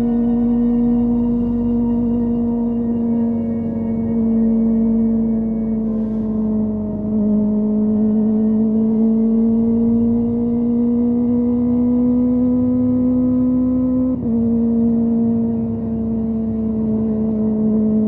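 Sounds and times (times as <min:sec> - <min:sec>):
motorcycle engine revving high: 0:06.4 - 0:18.0.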